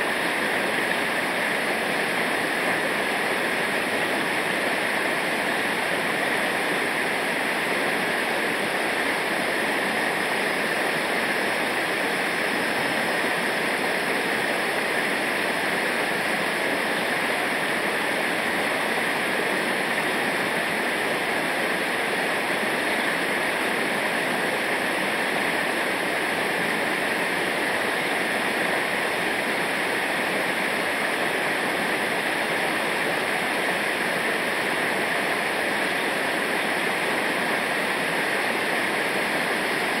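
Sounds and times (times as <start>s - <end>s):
river water roaring: 0.0s - 40.0s.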